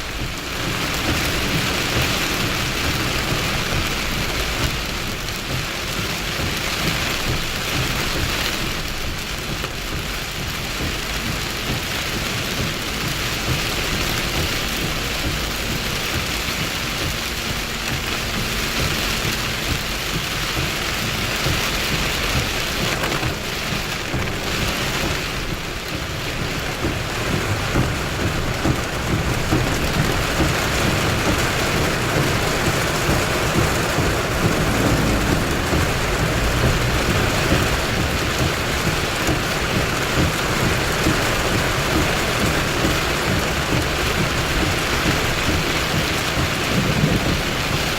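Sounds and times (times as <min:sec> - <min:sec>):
heavy rain falling: 0:00.0 - 0:47.9
thunder rumbling: 0:21.2 - 0:47.9.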